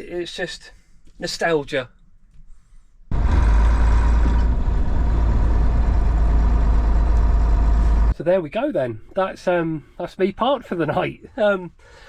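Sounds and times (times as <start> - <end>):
diesel lorry engine rumbling: 3.1 - 8.2.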